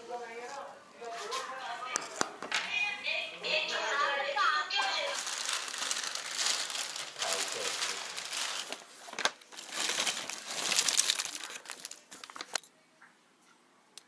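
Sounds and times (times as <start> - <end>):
packaging crinkling and rustling: 4.8 - 12.7.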